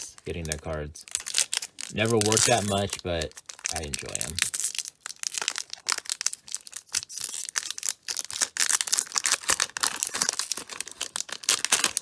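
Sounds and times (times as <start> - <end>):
paper crinkling: 0.0 - 12.0.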